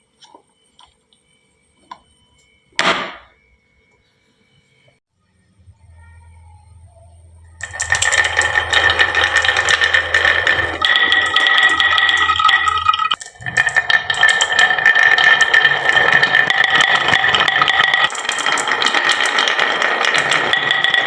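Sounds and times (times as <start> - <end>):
steady high ringing tone: 0.0 - 21.0
marbles clattering down wooden run: 7.6 - 21.0.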